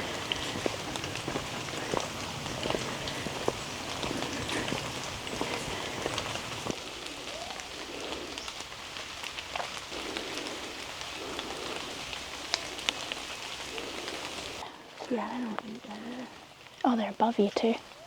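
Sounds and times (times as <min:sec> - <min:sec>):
sharp drips: 0:00.0 - 0:15.3
rain falling through foliage: 0:00.0 - 0:18.0.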